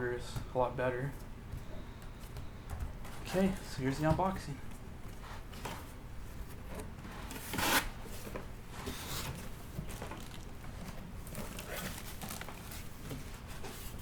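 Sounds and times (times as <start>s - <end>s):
cardboard packaging rustling: 5.5s - 14.0s.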